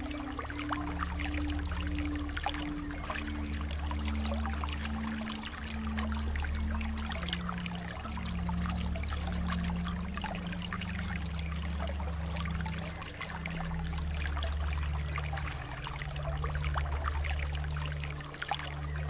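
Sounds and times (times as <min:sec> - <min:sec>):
low droning tone: 0:00.0 - 0:19.0
water trickling and splashing: 0:00.0 - 0:19.0.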